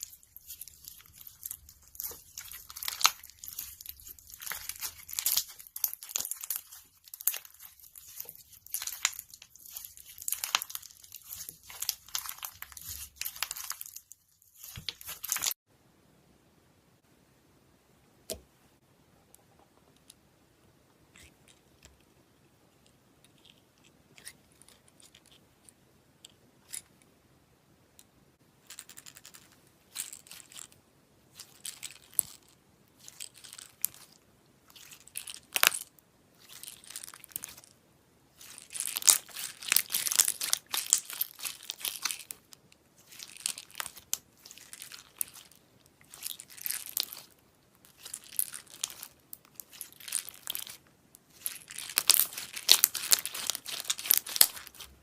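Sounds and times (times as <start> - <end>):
slime crackling and popping: 0.0 - 15.6, 38.4 - 55.0.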